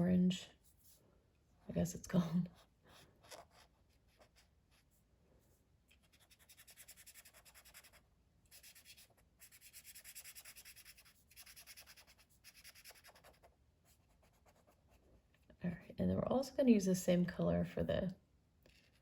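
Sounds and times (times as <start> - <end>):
colouring strokes on paper: 2.2 - 15.0.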